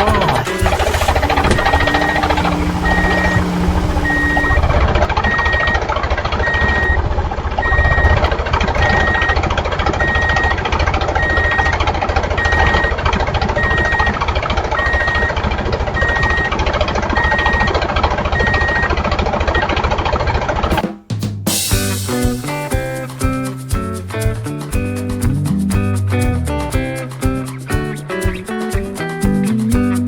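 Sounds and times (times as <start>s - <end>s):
toy tractor engine chugging: 0.0s - 5.1s.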